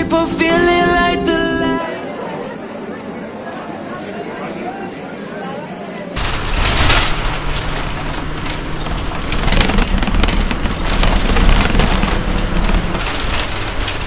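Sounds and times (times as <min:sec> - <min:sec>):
clicks and rattles: 0:06.2 - 0:14.0
road vehicle rumble: 0:06.2 - 0:14.0.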